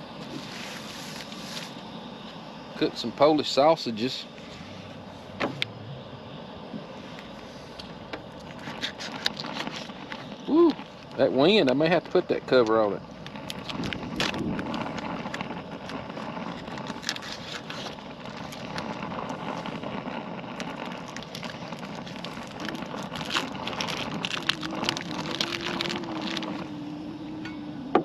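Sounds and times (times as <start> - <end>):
low steady hum: 0.0 - 28.0
sausages sizzling in a pan: 8.6 - 27.2
wind on microphone: 13.4 - 16.8.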